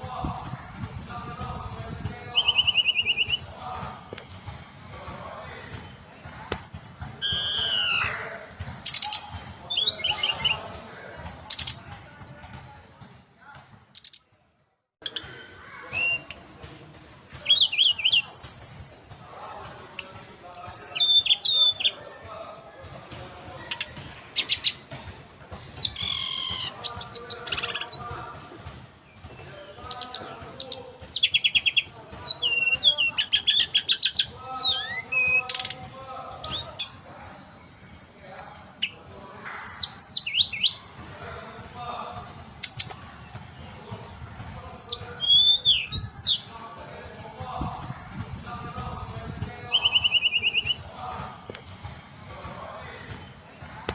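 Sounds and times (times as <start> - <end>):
bird singing whistles and rattles: 1.6 - 3.6, 6.5 - 8.2, 8.8 - 10.8, 11.5 - 11.8, 15.9 - 18.8, 20.5 - 22.0, 25.4 - 28.0, 29.0 - 39.0, 42.6 - 43.0, 44.7 - 46.5, 48.9 - 53.9.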